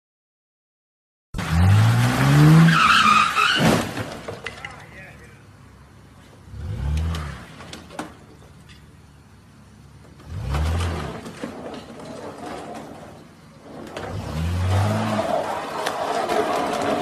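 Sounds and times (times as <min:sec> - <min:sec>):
car engine revving: 0:01.4 - 0:03.3, 0:06.4 - 0:07.7, 0:10.1 - 0:11.4, 0:14.0 - 0:17.0.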